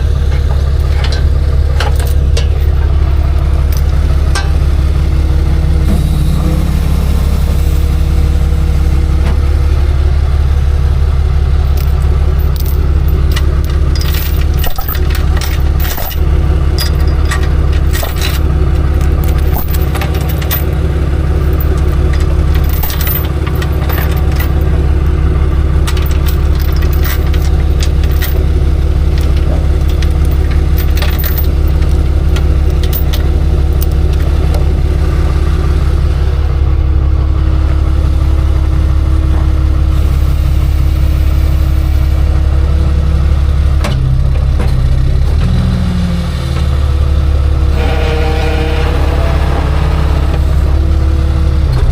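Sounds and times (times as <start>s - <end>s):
truck engine running: 0.0s - 51.9s
metallic clicks and rattles: 11.7s - 20.8s, 21.4s - 24.7s, 25.8s - 34.3s.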